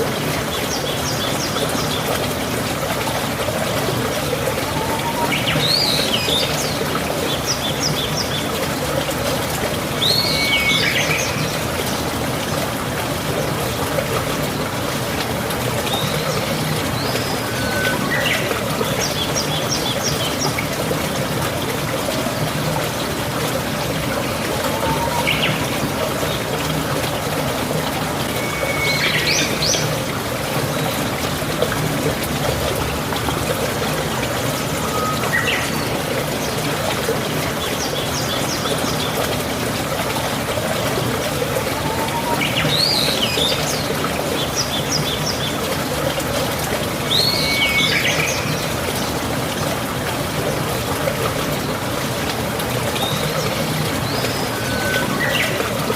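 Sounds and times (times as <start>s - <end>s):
running water: 0.0s - 55.9s
birds chirping: 24.0s - 26.5s.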